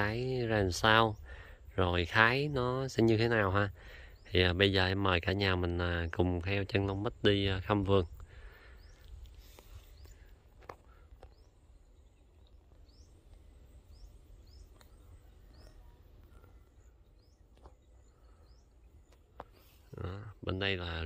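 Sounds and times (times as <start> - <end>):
bird rising chirp: 8.0 - 21.0
soft clicks: 14.6 - 15.0.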